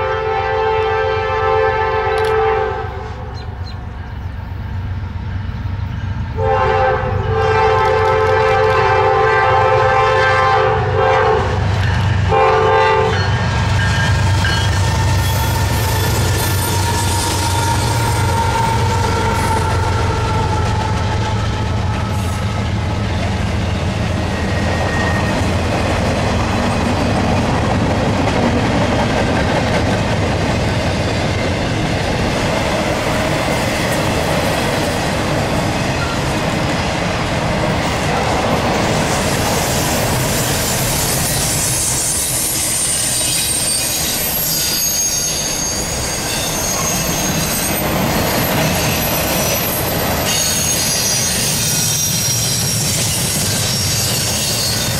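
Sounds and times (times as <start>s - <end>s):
train wheels rolling on rails: 11.2s - 54.9s
high-pitched wheel squeal: 13.1s - 25.6s, 39.6s - 54.9s.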